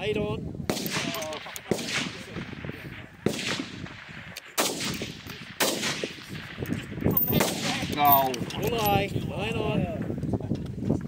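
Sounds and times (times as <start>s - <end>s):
wind buffeting microphone: 0.0s - 11.0s
rifle shots echoing: 0.7s - 8.4s.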